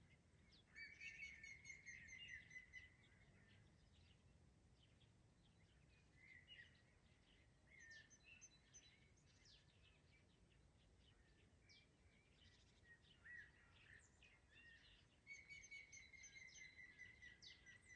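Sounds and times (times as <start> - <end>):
songbirds singing: 0.0 - 17.9.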